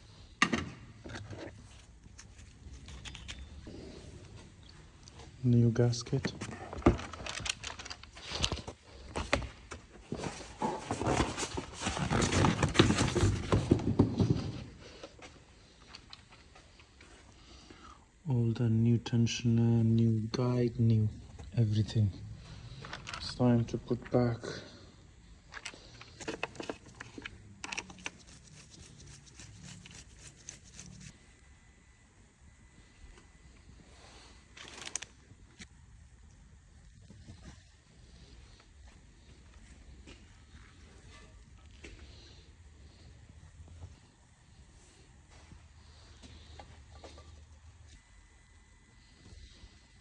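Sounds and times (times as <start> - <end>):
tools and parts clattering: 0.4 - 3.7, 6.1 - 16.4, 22.7 - 23.4, 25.5 - 28.4.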